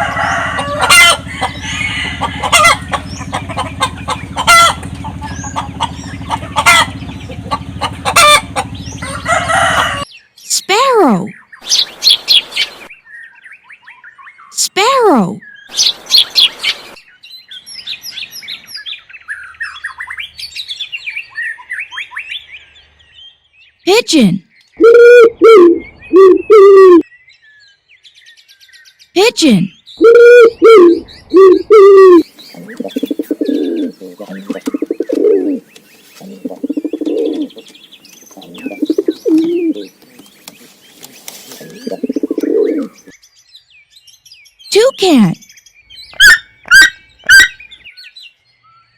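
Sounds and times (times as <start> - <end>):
sparrows chirping: 0.0 - 24.8, 25.8 - 30.0, 30.8 - 48.9
pigeon cooing: 24.8 - 27.0, 30.0 - 43.1.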